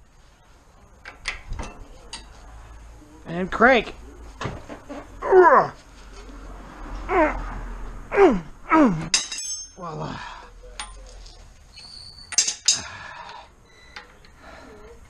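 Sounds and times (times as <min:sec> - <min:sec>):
steel hand tools clinking: 0:09.1 - 0:10.0, 0:12.2 - 0:13.0.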